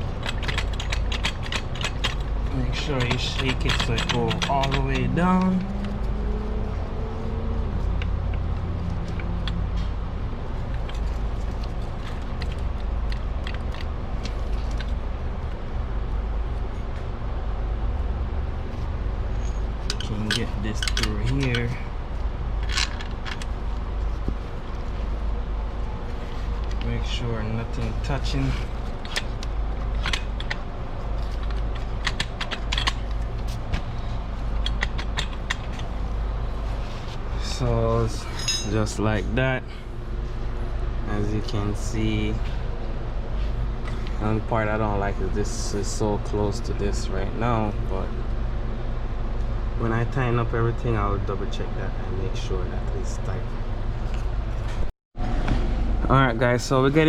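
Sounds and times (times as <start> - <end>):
metallic clicks of exhaust parts: 0.0 - 6.2, 7.8 - 15.6, 19.3 - 25.1, 25.9 - 39.3
steady low hum: 0.0 - 57.0
steady low rumble: 0.0 - 57.0.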